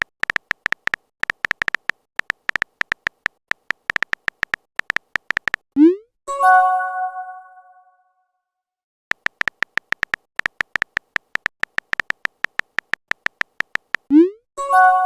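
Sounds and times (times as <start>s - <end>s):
electronic keyboard typing ticks: 0.0s - 6.0s, 9.1s - 14.4s.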